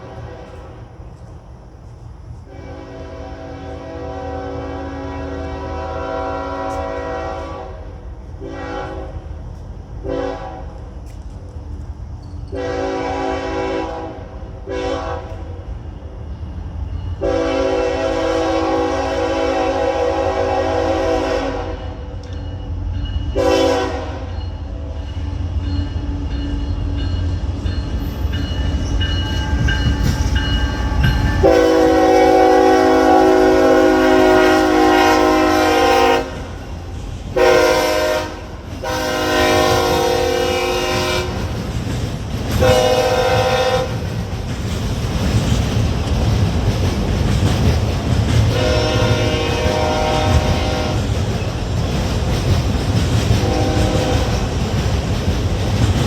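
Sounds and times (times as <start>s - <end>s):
locomotive air horn blasts: 0.0s - 0.9s, 2.5s - 9.2s, 10.0s - 10.7s, 12.5s - 15.5s, 17.2s - 22.1s, 23.4s - 24.3s, 31.4s - 36.7s, 37.4s - 41.5s, 42.6s - 44.0s, 48.5s - 51.1s, 53.4s - 54.4s
train rumbling on rails: 0.0s - 56.0s.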